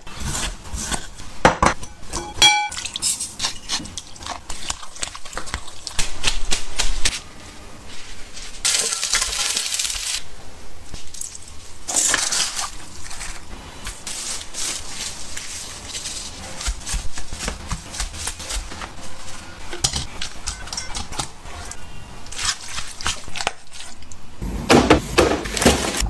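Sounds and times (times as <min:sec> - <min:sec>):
noisy rustling: 0:06.2 - 0:20.5
kitchen items clicking and tapping: 0:16.6 - 0:21.9.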